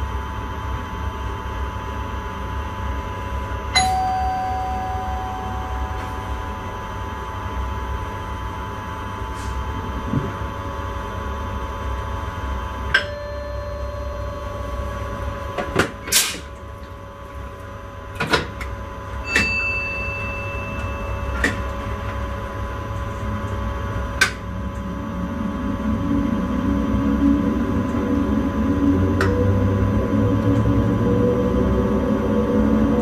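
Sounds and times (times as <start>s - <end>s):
electrical hum: 0.0s - 33.0s
train rumble: 20.2s - 33.0s.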